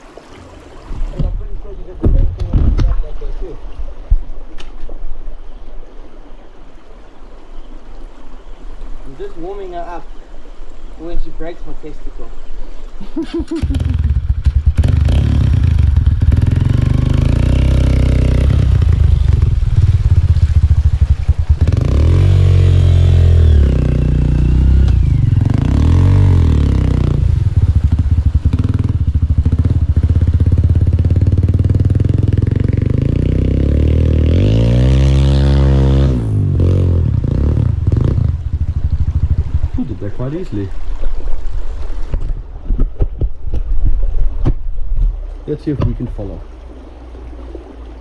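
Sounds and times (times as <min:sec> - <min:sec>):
motorbike engine revving hard: 0:13.5 - 0:39.9.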